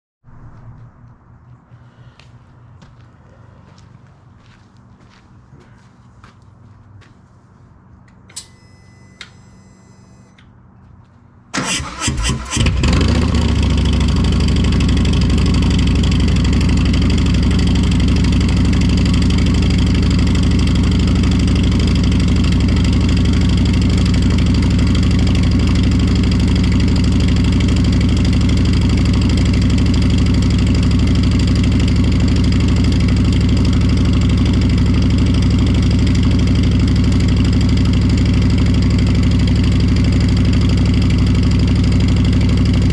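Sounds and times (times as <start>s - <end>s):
starter motor cranking: 11.6s - 13.2s
motorcycle engine idling: 11.8s - 42.9s.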